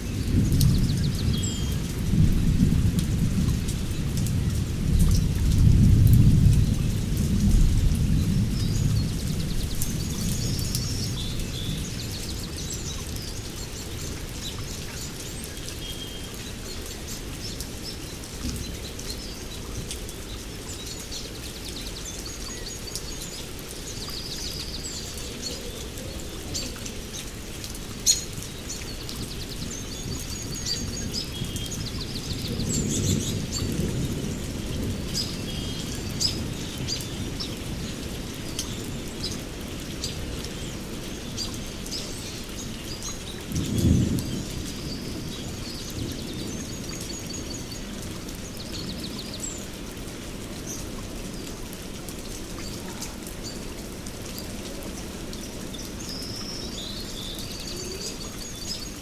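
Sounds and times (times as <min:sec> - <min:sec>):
steady rain: 0:00.0 - 0:59.0
thunder rumbling: 0:43.4 - 0:46.7.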